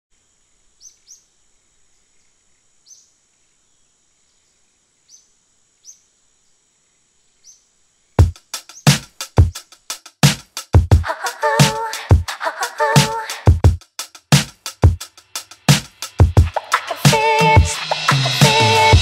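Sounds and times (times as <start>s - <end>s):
heavy drum-machine beat: 8.2s - 19.0s.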